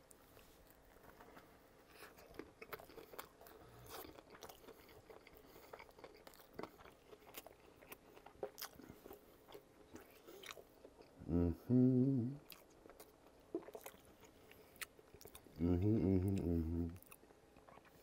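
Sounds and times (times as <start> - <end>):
chewing food: 1.9 - 11.2, 12.4 - 18.0
mouth clicks and crunches: 1.9 - 11.2, 12.4 - 15.6.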